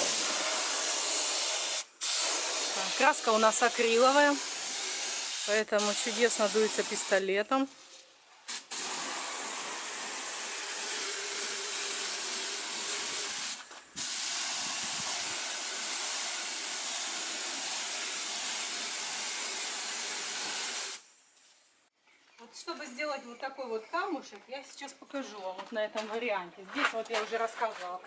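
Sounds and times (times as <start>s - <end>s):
paint spray gun hissing: 0.0s - 7.2s, 8.5s - 21.1s.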